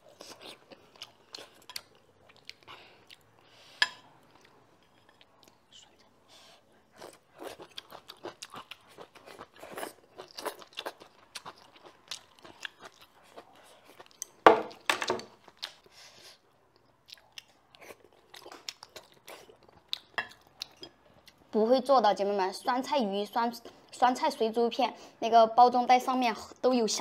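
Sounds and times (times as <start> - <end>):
person chewing food: 0.0 - 21.5.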